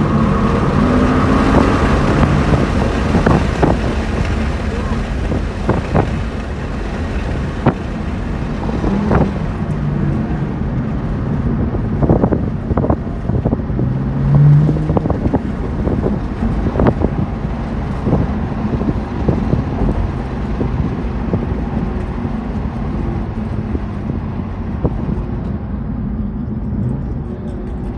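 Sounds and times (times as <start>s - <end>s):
car engine at speed: 0.0s - 27.9s
wind buffeting microphone: 0.0s - 27.9s.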